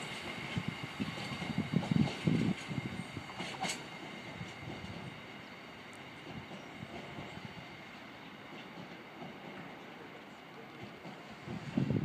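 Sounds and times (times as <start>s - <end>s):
train wheels knocking on rail joints: 0.0s - 5.2s, 5.9s - 7.6s, 8.5s - 9.9s, 10.7s - 12.0s.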